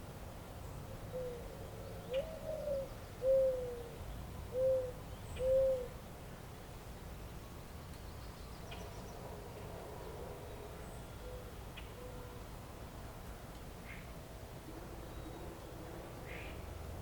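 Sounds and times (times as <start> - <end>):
faint outdoor hiss: 0.0 - 17.0
bird hooting: 2.1 - 3.9, 4.5 - 5.9.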